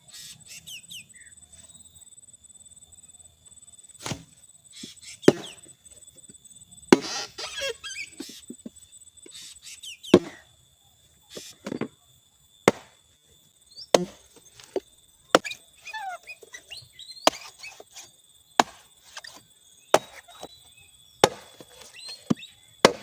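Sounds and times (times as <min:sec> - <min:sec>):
faint bird chirps: 0:00.0 - 0:12.6, 0:13.4 - 0:22.8
high insect-like whine: 0:00.0 - 0:23.0
blade chopping bamboo: 0:05.3 - 0:05.6, 0:12.7 - 0:13.0, 0:13.9 - 0:14.8, 0:15.4 - 0:15.6, 0:17.2 - 0:20.5, 0:21.2 - 0:23.0.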